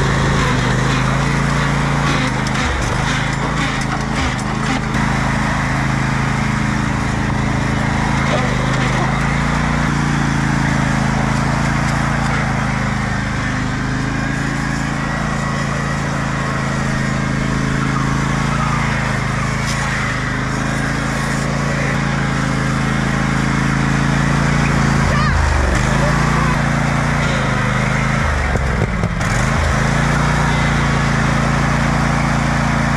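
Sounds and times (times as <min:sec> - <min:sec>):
riding lawn mower engine: 0:00.0 - 0:32.9.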